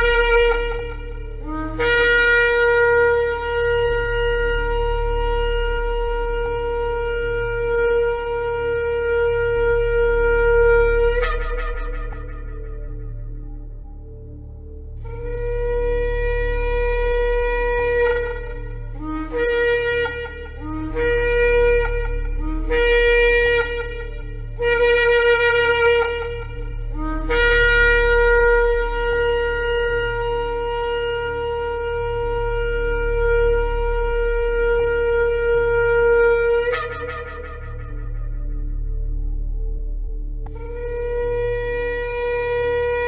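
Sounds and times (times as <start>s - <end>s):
steady low hum: 0.0s - 43.0s
ram's horn blasts: 15.0s - 39.7s.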